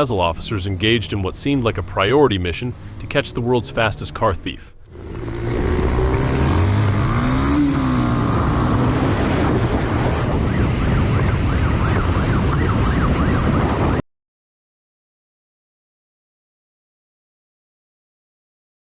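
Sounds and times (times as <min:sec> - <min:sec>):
vehicle engine and road noise: 0:00.0 - 0:14.0
siren wailing: 0:03.0 - 0:14.0.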